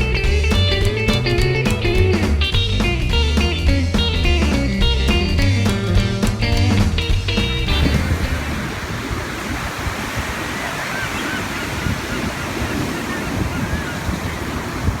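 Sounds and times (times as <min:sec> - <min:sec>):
wind buffeting microphone: 0:06.3 - 0:15.0
ocean surf washing: 0:07.4 - 0:15.0.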